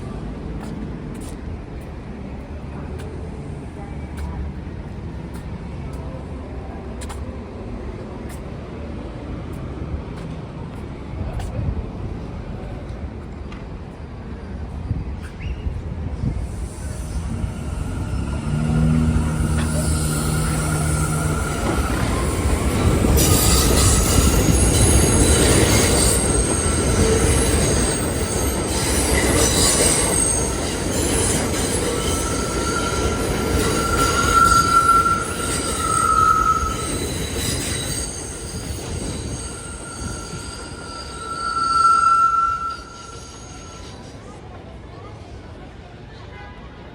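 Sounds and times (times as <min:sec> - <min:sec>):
train rumble: 0:00.0 - 0:46.8
train wheels squealing on rails: 0:13.3 - 0:45.4.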